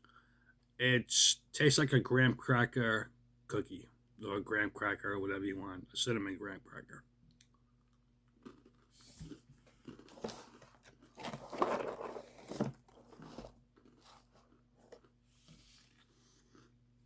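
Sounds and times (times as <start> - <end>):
person chewing crunchy snack: 7.9 - 16.8.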